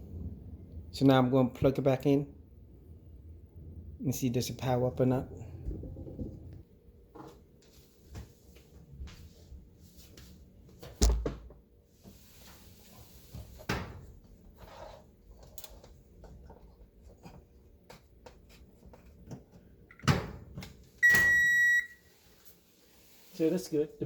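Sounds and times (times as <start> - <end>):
oven control beep: 21.0 - 22.1.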